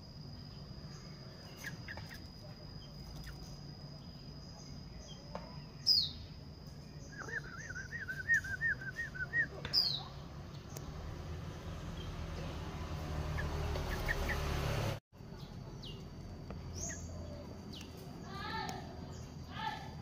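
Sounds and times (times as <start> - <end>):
insect trill: 0.0 - 20.0
birds calling: 0.1 - 20.0
high descending bird chirps: 0.9 - 14.9.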